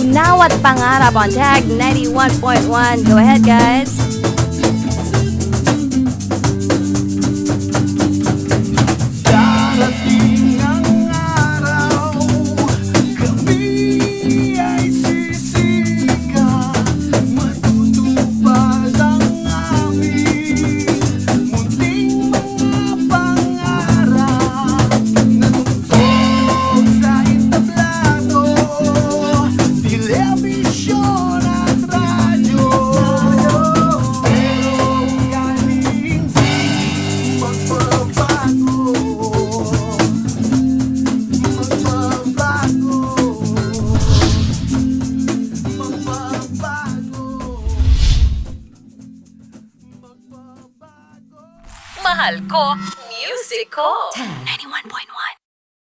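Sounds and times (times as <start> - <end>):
shaker rattling: 0.0 - 14.2, 39.2 - 51.0
band playing pop-rock song: 0.0 - 47.7.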